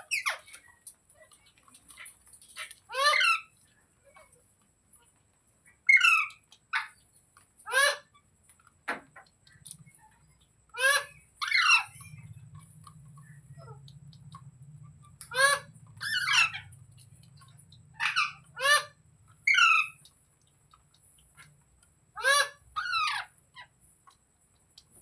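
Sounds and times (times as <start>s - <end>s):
parrot calling: 0.0s - 0.6s, 2.0s - 3.6s, 5.8s - 7.0s, 7.6s - 8.2s, 10.7s - 20.1s, 22.2s - 23.7s.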